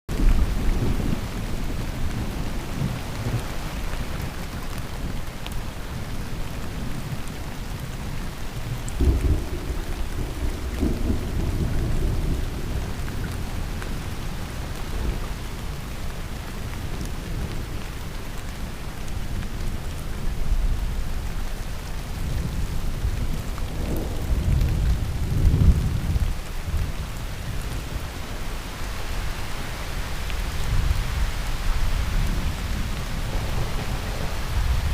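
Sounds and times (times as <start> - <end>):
heavy rain: 0.1 - 34.9
low rolling thunder: 8.6 - 15.8, 22.1 - 28.2, 30.4 - 34.9.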